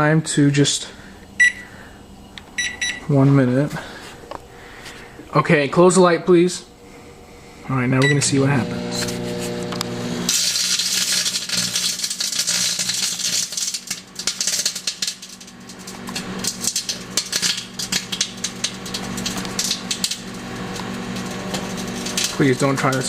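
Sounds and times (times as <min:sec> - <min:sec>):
microwave oven humming: 0:00.6 - 0:05.2, 0:06.7 - 0:23.0
disc sparking and crackling: 0:08.4 - 0:23.0.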